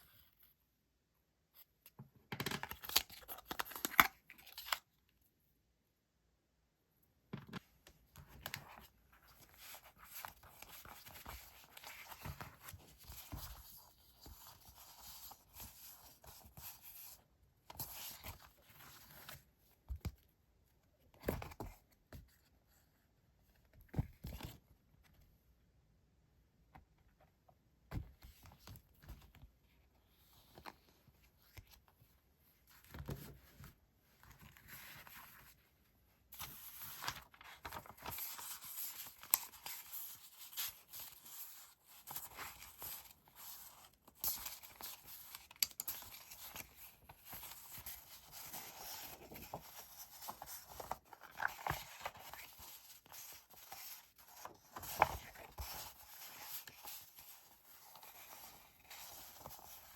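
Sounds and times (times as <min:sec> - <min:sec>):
paper rustling and crinkling: 0:36.4 - 0:59.9.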